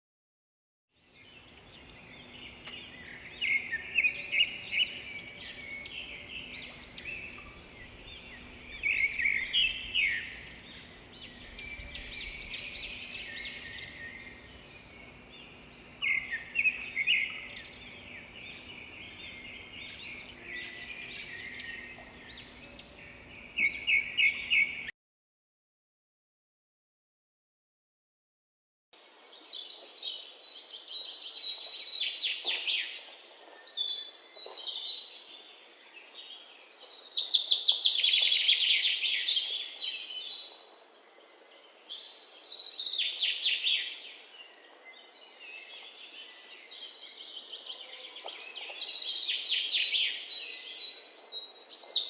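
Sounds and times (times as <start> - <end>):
birds singing and calling: 1.0 - 24.9, 29.0 - 52.0
faint steady hum: 1.4 - 24.8.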